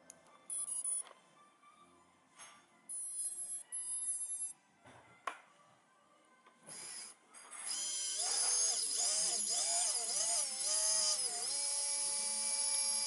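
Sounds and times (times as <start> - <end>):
quadcopter motors whining: 7.7 - 13.0.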